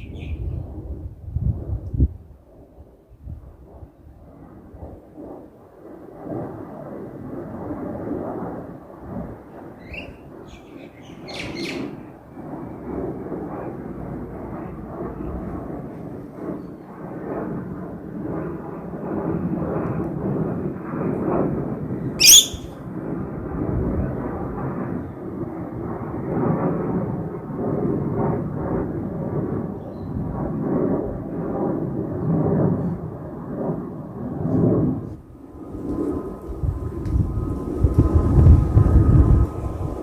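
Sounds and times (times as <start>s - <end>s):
airliner engines rumbling: 3.6s - 40.0s
bird chirping: 9.9s - 11.8s, 22.2s - 22.7s.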